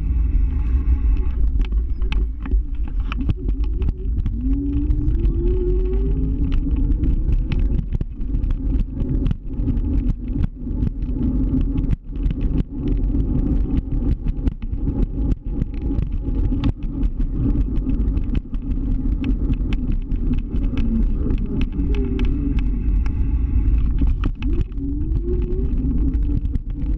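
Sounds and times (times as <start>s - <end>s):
scooter rolling over pavement: 1.5s - 12.7s.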